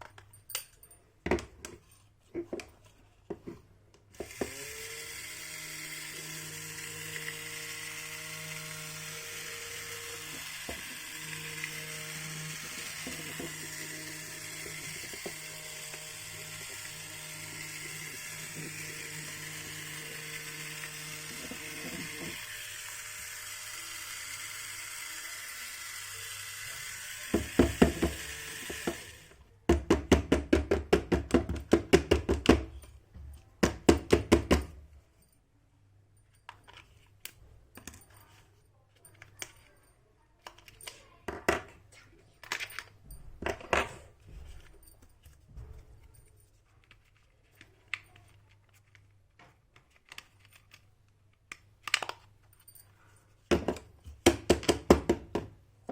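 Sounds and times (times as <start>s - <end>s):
small motor whirring: 4.1s - 29.4s.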